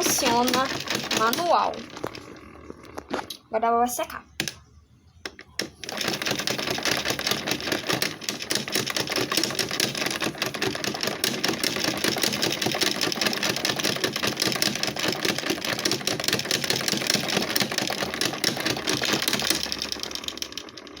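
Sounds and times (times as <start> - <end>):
washing machine spinning: 0.0 - 3.6, 5.3 - 21.0.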